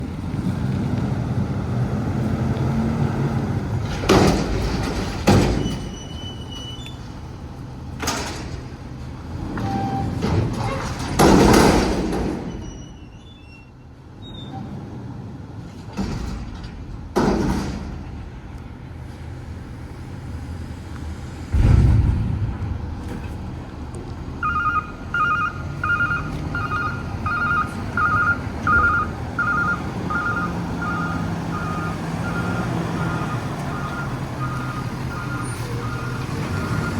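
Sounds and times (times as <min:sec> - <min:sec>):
garbage truck running: 0:00.0 - 0:36.9
reversing beeper: 0:24.4 - 0:36.9.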